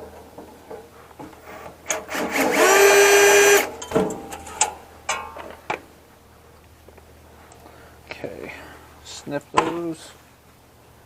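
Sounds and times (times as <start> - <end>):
small electric motor whirring: 1.9 - 3.7
clicks and knocks of tools: 3.8 - 5.8.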